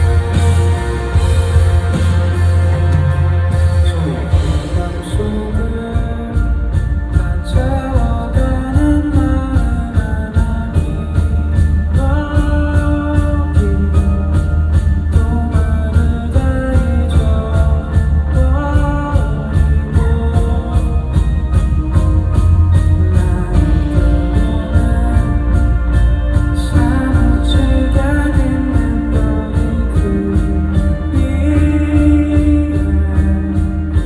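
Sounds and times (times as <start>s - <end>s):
heavy bass: 0.0s - 34.0s
live band music: 0.0s - 34.0s
steady drum beat: 0.0s - 34.0s.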